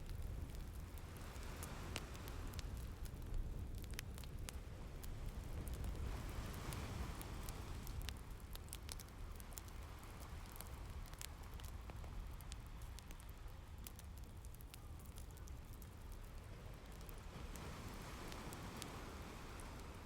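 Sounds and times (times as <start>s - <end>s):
rain rumble: 0.0s - 20.0s
fireplace crackling: 12.4s - 20.0s.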